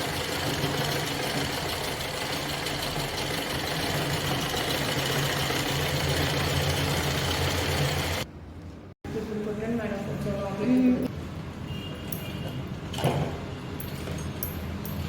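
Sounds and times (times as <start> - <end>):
sewing machine stitching: 0.0 - 8.2.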